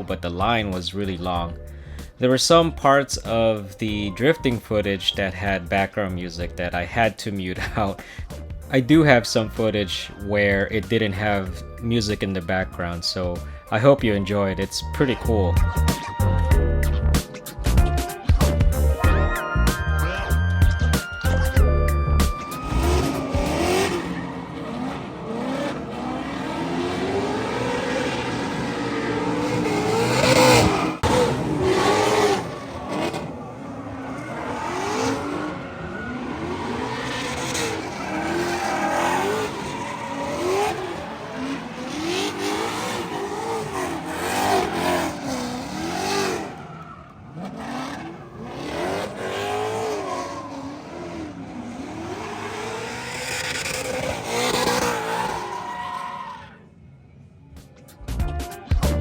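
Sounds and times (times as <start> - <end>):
car engine revving: 0.0 - 56.3
tyres squealing: 22.3 - 56.7.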